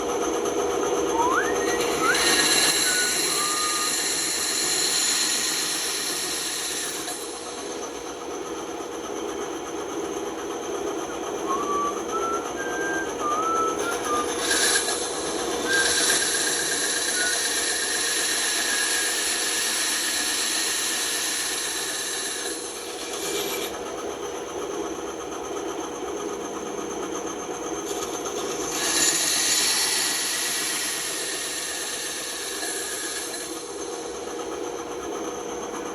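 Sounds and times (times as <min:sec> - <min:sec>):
band saw cutting wood: 0:01.1 - 0:07.8, 0:11.5 - 0:23.8, 0:27.9 - 0:34.2.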